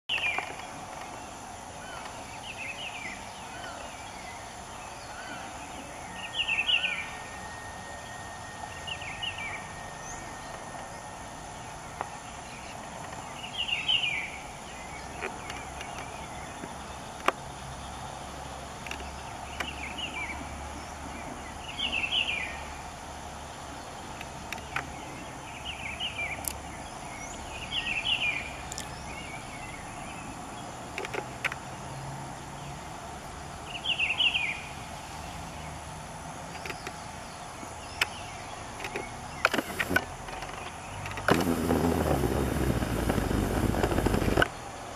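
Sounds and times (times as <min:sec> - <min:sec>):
wild birds chirping: 0:00.1 - 0:30.8, 0:33.6 - 0:35.9
natural ambience drone: 0:00.1 - 0:44.9.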